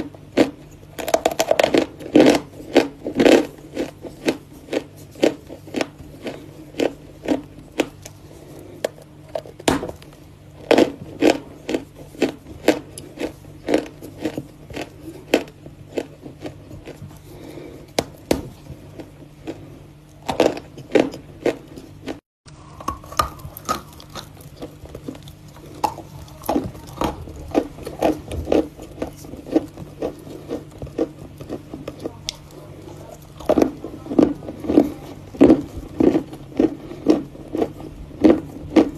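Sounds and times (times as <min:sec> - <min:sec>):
chalk being chewed: 0:23.2 - 0:38.9.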